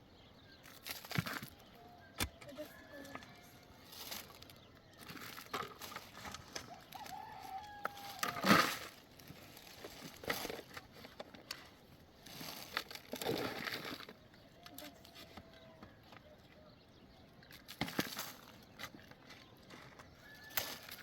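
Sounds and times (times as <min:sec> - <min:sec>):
chickens calling: 0:00.6 - 0:21.0
rooster crowing: 0:01.8 - 0:03.8, 0:06.6 - 0:08.8, 0:20.2 - 0:21.0.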